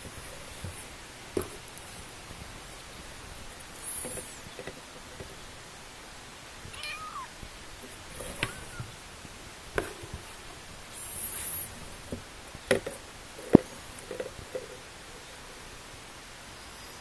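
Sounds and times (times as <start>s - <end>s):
kittens mewing: 6.6s - 7.4s, 8.3s - 9.0s.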